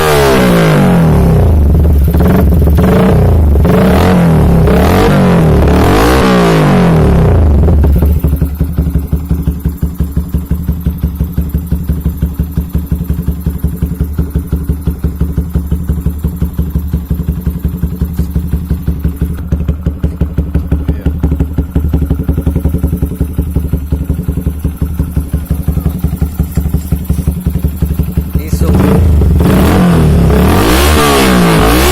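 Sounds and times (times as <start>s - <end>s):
motorcycle engine revving and idling: 0.0s - 31.9s.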